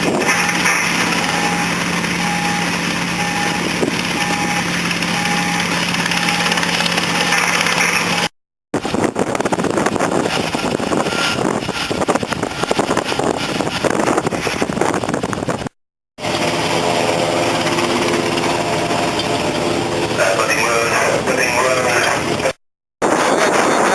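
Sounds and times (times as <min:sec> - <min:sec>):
wind noise: 0:00.0 - 0:01.6, 0:08.8 - 0:16.4, 0:22.2 - 0:23.9
engine humming: 0:00.0 - 0:15.6, 0:16.2 - 0:22.6
faint repeating beep: 0:04.2 - 0:07.4.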